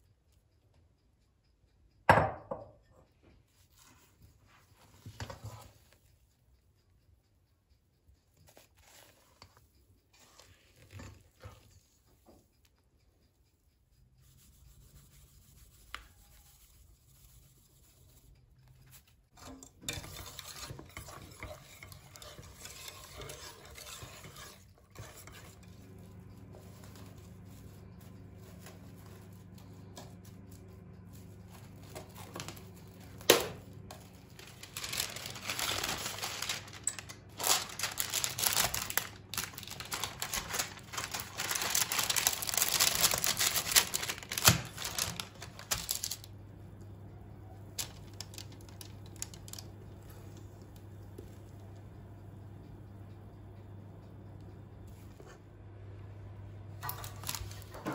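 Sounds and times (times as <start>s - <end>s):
dishes and utensils knocking: 2.1s - 2.9s
steady low hum: 2.8s - 57.9s
utensil stirring and scraping pot: 3.6s - 6.1s, 8.5s - 12.3s, 14.2s - 45.8s.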